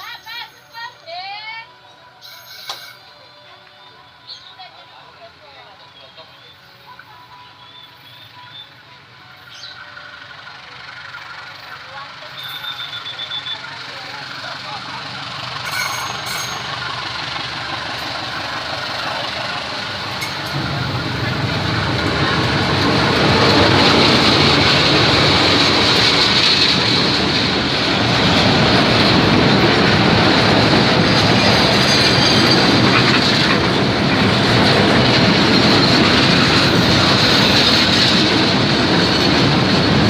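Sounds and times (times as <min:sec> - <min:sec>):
train wheels screeching: 0:02.2 - 0:03.2, 0:09.4 - 0:40.0
train wheels clattering on rails: 0:09.7 - 0:40.0.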